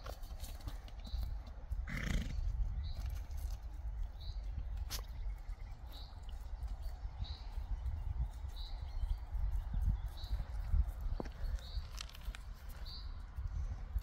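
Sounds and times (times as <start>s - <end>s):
steady low rumble: 0.9s - 14.0s
bird chirping: 2.8s - 13.2s.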